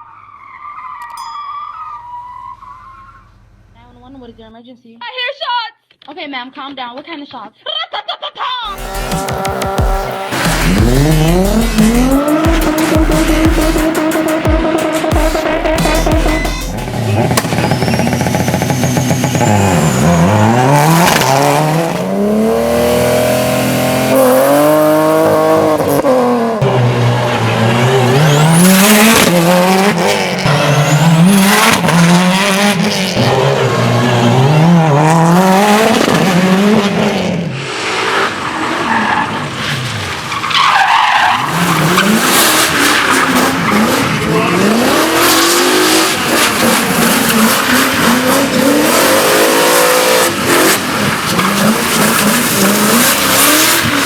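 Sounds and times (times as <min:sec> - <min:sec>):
car engines revving hard: 0:08.7 - 0:54.0
exhaust pops and bangs: 0:09.0 - 0:19.6.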